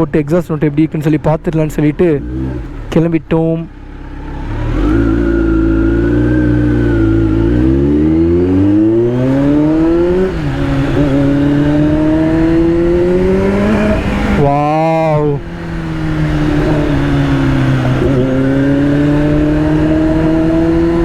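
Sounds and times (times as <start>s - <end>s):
motorcycle engine accelerating: 1.8s - 21.0s.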